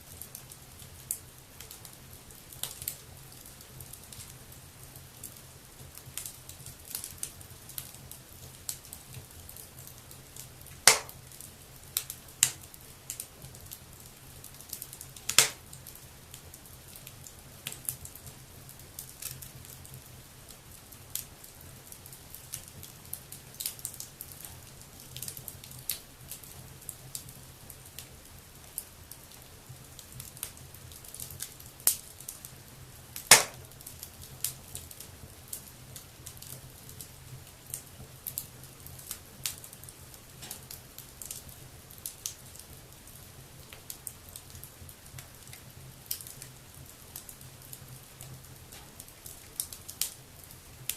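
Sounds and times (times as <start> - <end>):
wood fire crackling: 0.0 - 50.9
loud pops from fire: 10.7 - 11.4, 12.0 - 13.2, 14.7 - 15.9, 33.2 - 34.9, 40.4 - 41.4.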